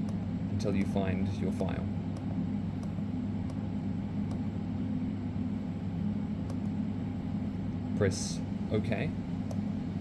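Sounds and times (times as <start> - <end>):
machinery hum: 0.0 - 10.0.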